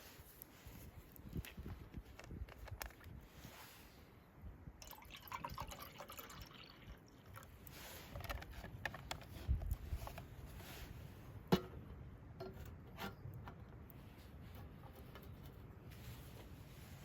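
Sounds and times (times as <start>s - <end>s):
small clicks and knocks: 1.1s - 3.1s, 8.1s - 10.3s.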